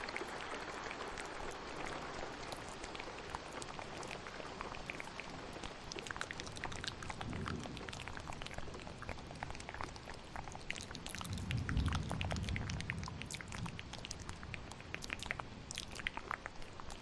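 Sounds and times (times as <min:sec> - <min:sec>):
steady rain: 0:00.0 - 0:17.0
wet mouth clicks and smacks: 0:02.5 - 0:17.0
thunder rumble: 0:07.1 - 0:09.7, 0:11.1 - 0:14.8.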